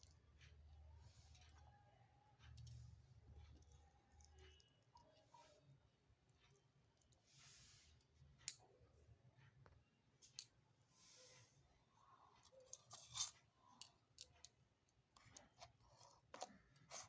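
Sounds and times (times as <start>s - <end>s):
small utensils clicking and tapping: 0.0s - 1.7s, 2.4s - 8.8s, 12.2s - 17.0s
soft scraping hiss: 7.2s - 8.0s, 10.3s - 11.8s.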